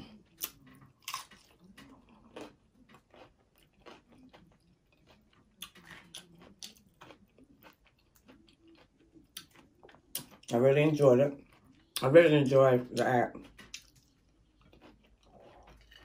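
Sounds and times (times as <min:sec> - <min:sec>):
faint chewing and crunching: 0:00.0 - 0:16.0.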